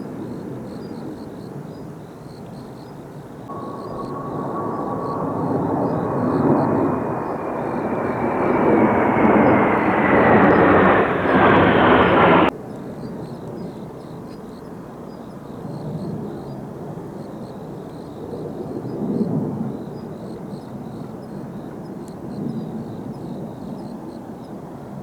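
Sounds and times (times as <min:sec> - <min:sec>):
jet aircraft roar passing overhead: 0:03.5 - 0:12.5.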